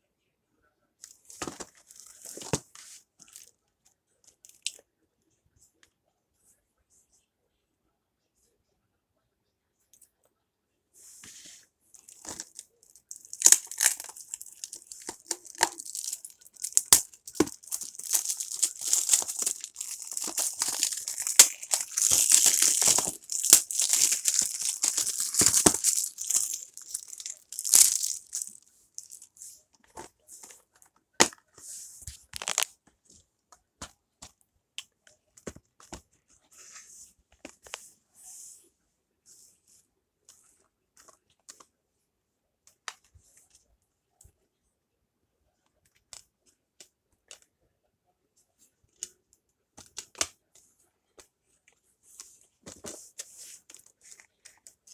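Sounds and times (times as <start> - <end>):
plastic clicks and crackles: 12.0 - 29.3, 32.1 - 32.7
plastic wrapping tearing and crinkling: 12.2 - 29.3, 32.3 - 32.7.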